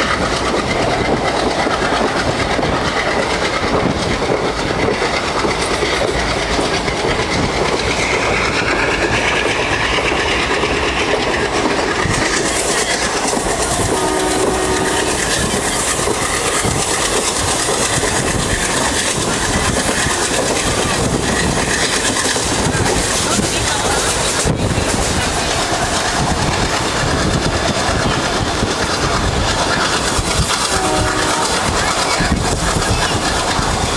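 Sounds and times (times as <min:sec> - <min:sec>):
train rumbling: 0:00.0 - 0:33.9
wheels clacking over rail joints: 0:00.0 - 0:33.9
train horn: 0:13.6 - 0:15.6, 0:30.7 - 0:31.8.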